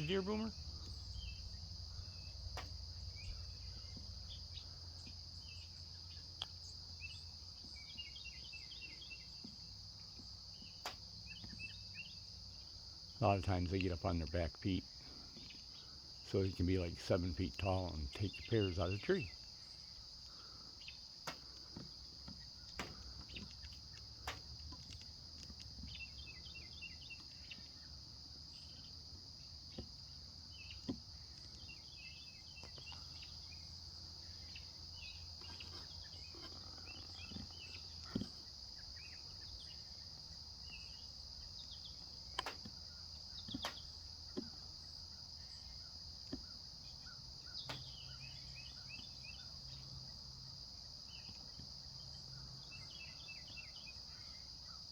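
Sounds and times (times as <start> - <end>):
faint clicks and chirps: 0.0 - 12.8, 17.4 - 29.0, 29.7 - 50.1
insect chorus: 0.0 - 54.9.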